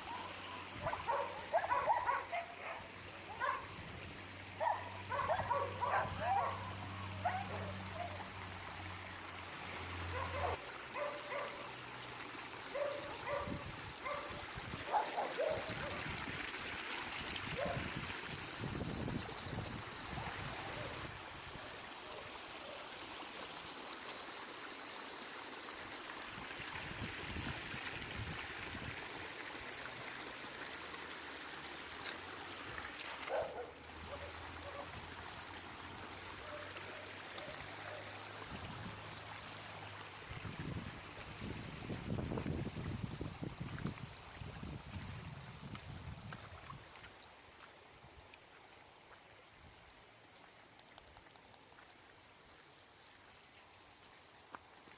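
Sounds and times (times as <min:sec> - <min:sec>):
floodwater rushing: 0:00.0 - 0:54.9
dog barking: 0:00.1 - 0:03.7, 0:04.6 - 0:08.2, 0:10.1 - 0:11.6, 0:12.7 - 0:14.3, 0:14.9 - 0:16.0, 0:33.3 - 0:34.9.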